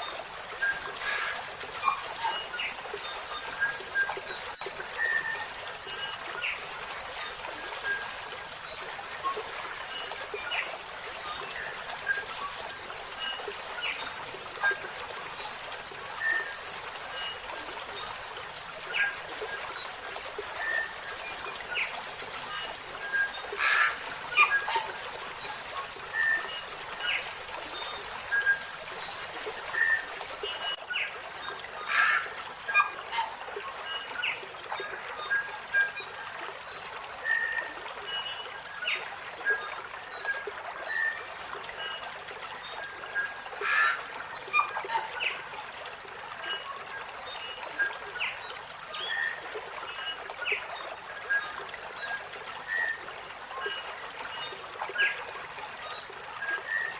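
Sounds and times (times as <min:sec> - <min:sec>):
small songbirds chirping: 0:00.0 - 0:30.8
trickle of running water: 0:00.0 - 0:56.9.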